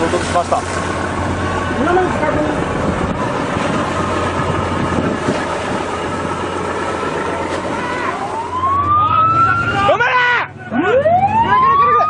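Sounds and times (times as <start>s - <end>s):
wind noise: 0.0s - 8.8s
ship's engine rumble: 0.0s - 12.0s
siren rising in pitch: 4.0s - 12.0s.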